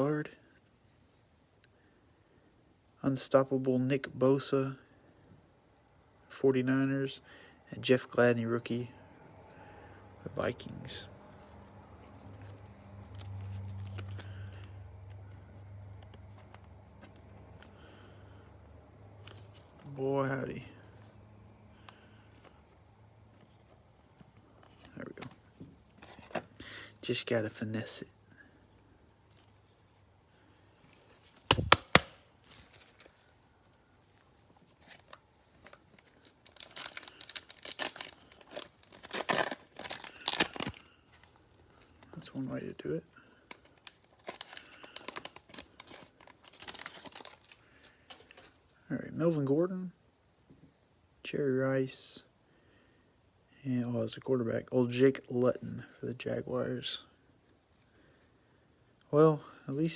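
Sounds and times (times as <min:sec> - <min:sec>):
card pack clicks and crinkles: 0:31.0 - 0:33.2, 0:34.7 - 0:42.3, 0:43.4 - 0:48.6
cellophane wrapper tearing: 0:31.0 - 0:33.3, 0:34.7 - 0:41.0, 0:43.4 - 0:48.5.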